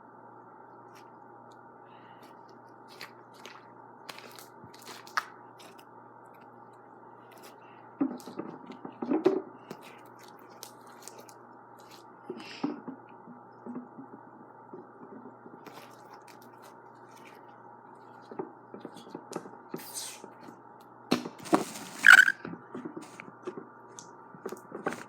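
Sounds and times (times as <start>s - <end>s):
slime squishing: 2.0s - 9.0s, 9.6s - 12.2s, 15.6s - 18.4s.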